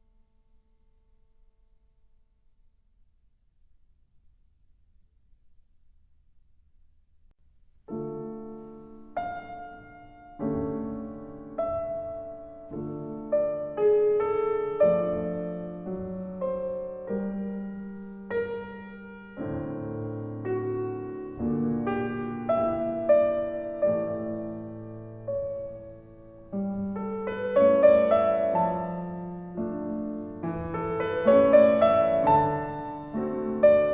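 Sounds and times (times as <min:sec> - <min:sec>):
slow solo piano music: 0:07.9 - 0:33.9.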